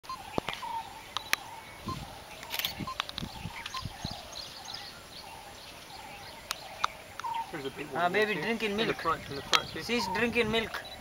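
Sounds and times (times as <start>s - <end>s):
birds chirping and whistling: 0.0s - 11.0s
sharp clicks: 0.4s - 1.4s, 2.4s - 3.8s.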